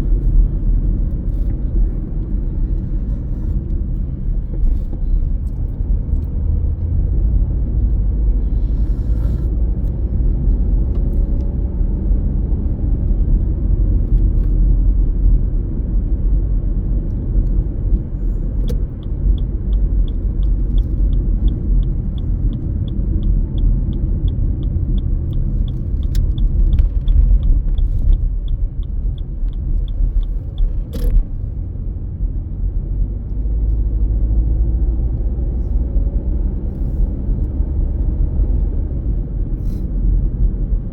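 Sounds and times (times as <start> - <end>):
car road and engine rumble: 0.0 - 40.9
turn signal ticking: 17.9 - 31.6.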